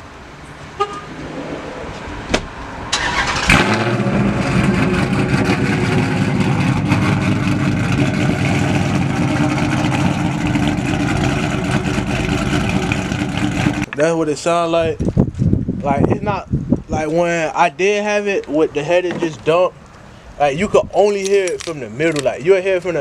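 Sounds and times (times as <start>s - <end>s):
engine starting and idling: 2.9s - 13.9s.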